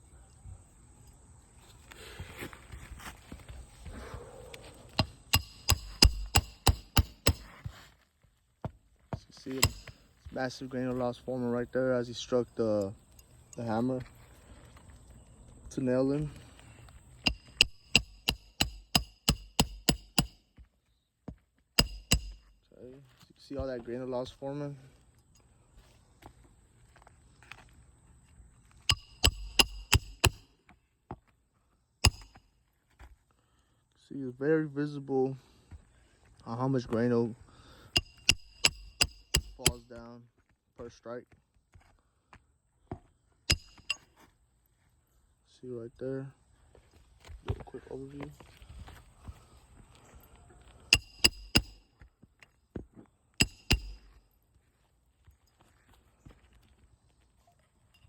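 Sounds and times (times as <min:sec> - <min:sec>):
hammer striking roofing nails: 0:05.0 - 0:07.6, 0:09.5 - 0:10.0, 0:17.3 - 0:20.4, 0:21.8 - 0:22.5, 0:28.9 - 0:30.4, 0:38.0 - 0:39.8, 0:50.9 - 0:51.8, 0:53.4 - 0:54.1.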